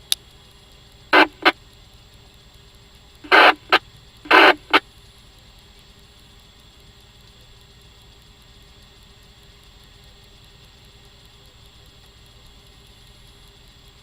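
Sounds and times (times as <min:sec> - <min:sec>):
radio squelch-tail click: 0:01.1 - 0:01.6, 0:03.2 - 0:04.8
radio static bursts: 0:01.1 - 0:01.6, 0:03.2 - 0:04.8.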